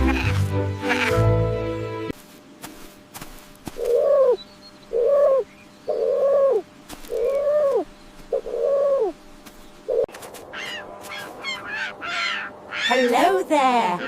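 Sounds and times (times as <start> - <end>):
high chirping bird calls: 3.8 - 14.0.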